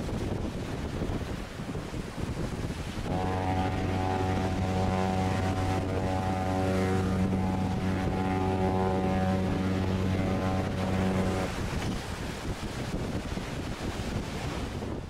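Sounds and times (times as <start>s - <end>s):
deep ship horn blast: 3.0s - 12.1s.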